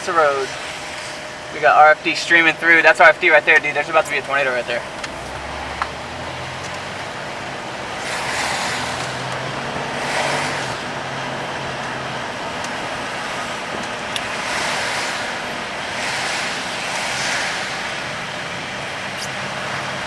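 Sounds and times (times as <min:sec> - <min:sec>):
low engine hum: 0:00.0 - 0:20.0
road and tyre noise in car: 0:00.0 - 0:20.0.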